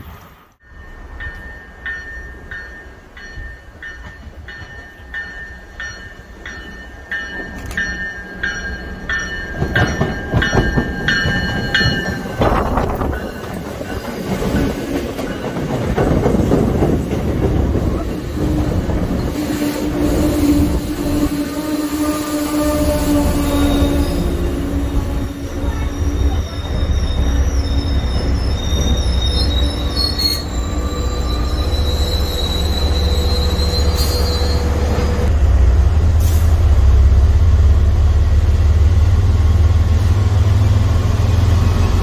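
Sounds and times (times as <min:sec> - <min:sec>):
train rumble and wheel clatter: 0:00.0 - 0:42.0
crossing warning bell: 0:00.6 - 0:15.9, 0:22.7 - 0:35.3.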